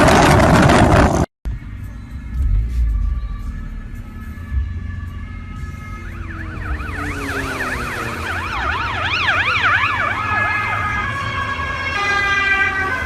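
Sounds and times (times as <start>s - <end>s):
low vehicle rumble: 0.0s - 13.0s
police siren yelping: 4.5s - 13.0s.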